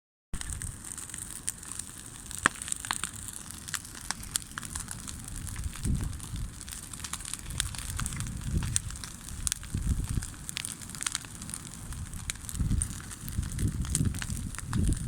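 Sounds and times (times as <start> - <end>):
campfire crackling: 0.4 - 15.0
fire hiss: 0.4 - 15.0
low rumbling: 11.9 - 15.0.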